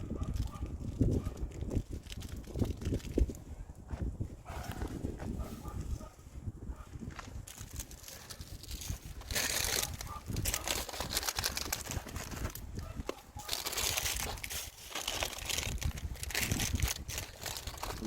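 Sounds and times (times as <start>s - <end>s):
plastic packets crinkling: 0.4s - 3.4s, 7.3s - 18.0s.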